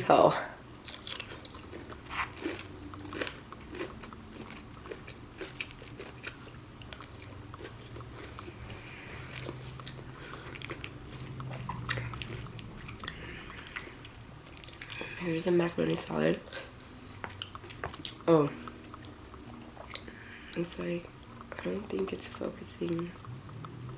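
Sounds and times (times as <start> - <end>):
person chewing crunchy food: 0.8 - 22.0.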